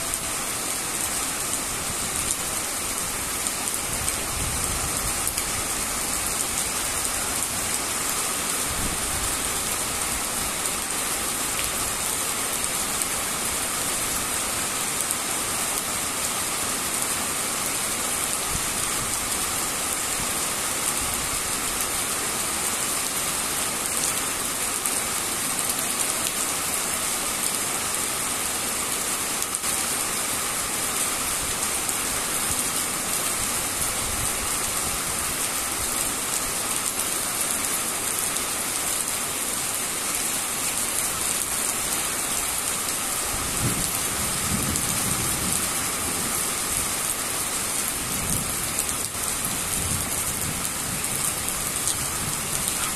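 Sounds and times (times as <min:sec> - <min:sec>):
steady rain falling: 0:00.0 - 0:52.9.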